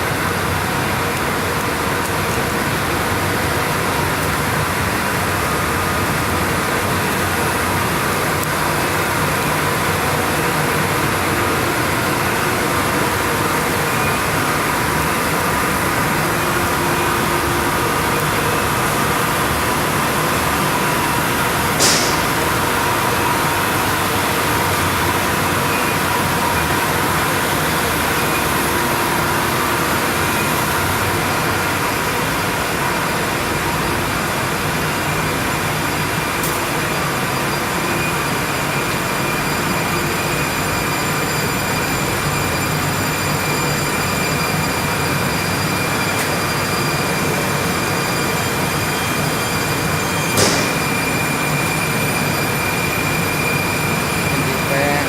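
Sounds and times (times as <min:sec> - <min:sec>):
industrial machinery hum: 0:00.0 - 0:55.0
sharp hiss: 0:21.8 - 0:22.4.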